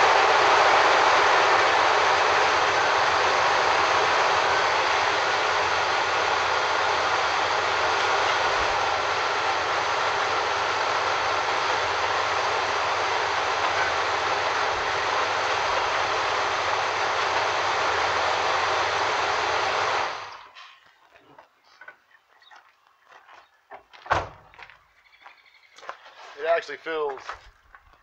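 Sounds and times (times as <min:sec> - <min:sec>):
car engine idling: 0:00.0 - 0:20.5.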